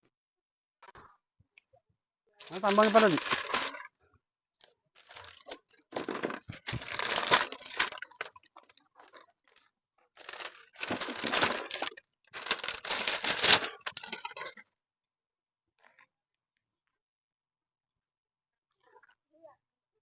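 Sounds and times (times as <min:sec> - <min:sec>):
rustling crinkling noise: 0:02.4 - 0:03.9, 0:04.6 - 0:14.6.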